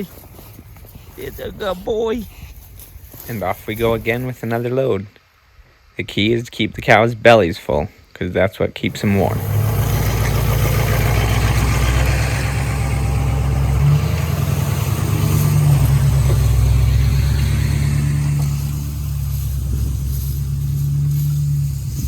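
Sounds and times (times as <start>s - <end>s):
farm vehicle engine running: 8.9s - 22.0s.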